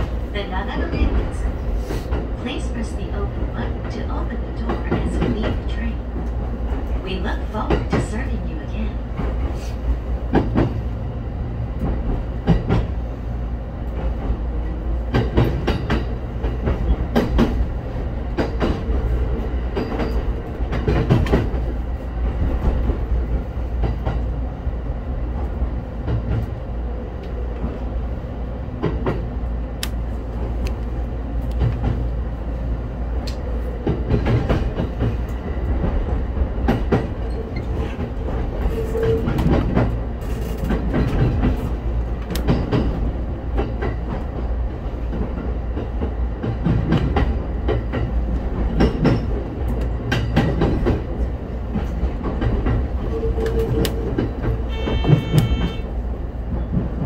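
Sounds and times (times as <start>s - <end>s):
train rumble: 0.0s - 57.0s
wheels clicking over rail joints: 33.3s - 57.0s.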